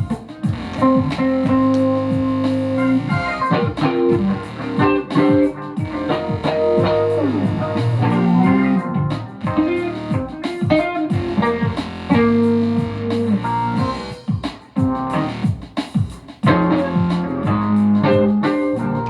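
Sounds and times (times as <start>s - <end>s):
plucked guitar with pitch bends: 0.5s - 14.2s, 16.5s - 19.0s.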